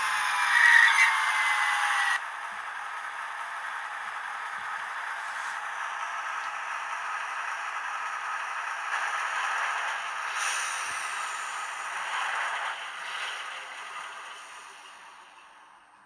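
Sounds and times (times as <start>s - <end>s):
model locomotive hiss: 10.0s - 16.0s.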